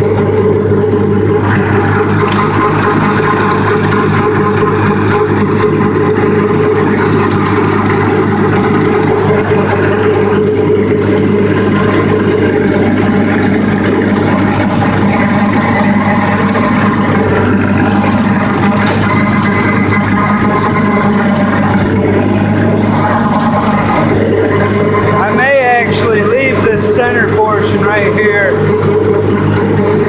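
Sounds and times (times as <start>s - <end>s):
tractor engine under load: 0.0s - 30.0s.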